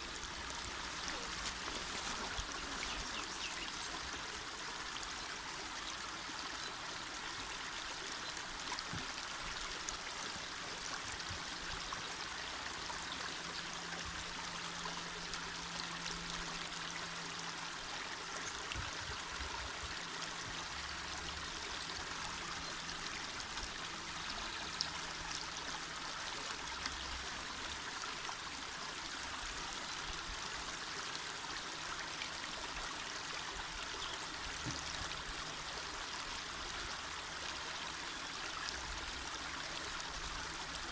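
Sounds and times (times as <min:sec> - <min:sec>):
river flowing over stones: 0:00.0 - 0:40.9.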